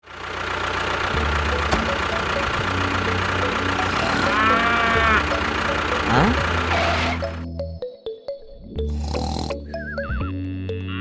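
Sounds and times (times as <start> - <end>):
engine idling: 0.0 - 7.5
animal-like call: 3.8 - 5.3, 6.0 - 7.4.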